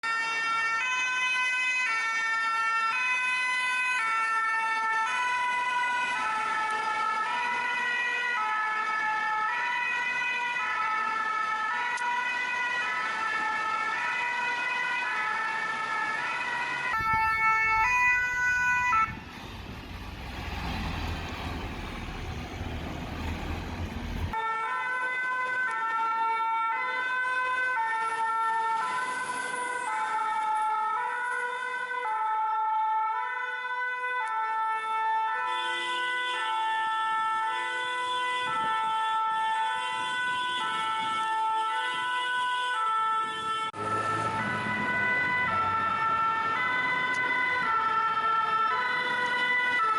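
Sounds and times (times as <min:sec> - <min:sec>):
two-tone siren: 0:00.0 - 0:19.3, 0:24.2 - 0:49.9.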